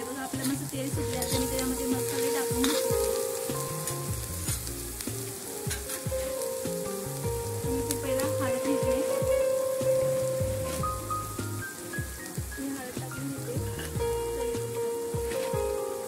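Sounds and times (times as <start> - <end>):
background music tune: 0.0 - 16.0
greens sizzling in hot oil: 0.0 - 16.0
spoon scraping a pan: 0.3 - 4.0.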